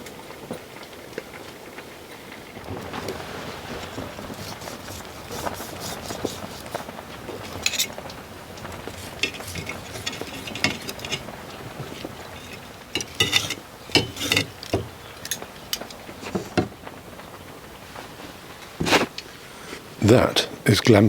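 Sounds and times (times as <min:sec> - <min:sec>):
cutlery and crockery clinking: 0:04.4 - 0:16.8.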